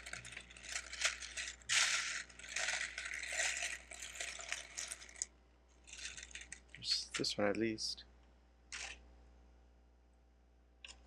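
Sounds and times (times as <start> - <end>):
plastic bricks clicking and rattling: 0.0 - 5.3, 5.9 - 6.7.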